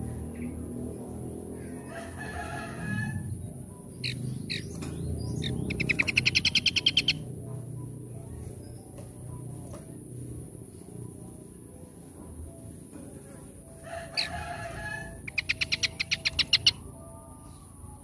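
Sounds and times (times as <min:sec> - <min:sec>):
low background noise: 0:00.0 - 0:18.0
rapid bird trill: 0:03.8 - 0:07.4, 0:14.0 - 0:16.9
harsh bird call: 0:05.4 - 0:07.2.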